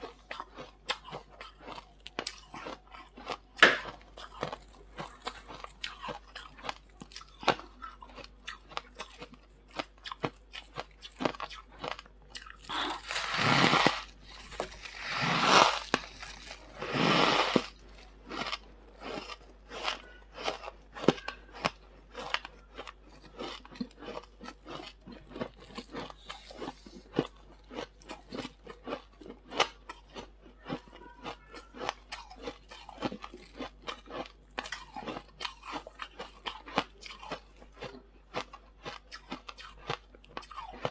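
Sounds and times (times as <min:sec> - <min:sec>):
squeaky crisp crunching of frost: 0:12.7 - 0:18.6.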